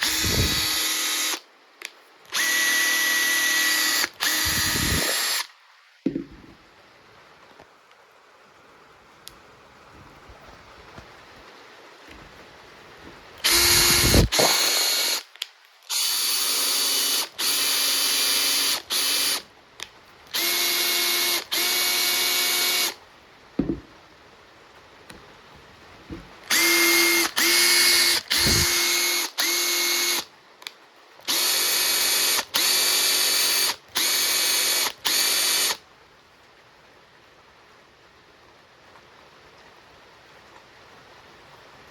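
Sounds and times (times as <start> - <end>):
impact driver motor whining: 0.0 - 1.4, 2.4 - 5.5, 13.4 - 15.2, 26.5 - 30.2.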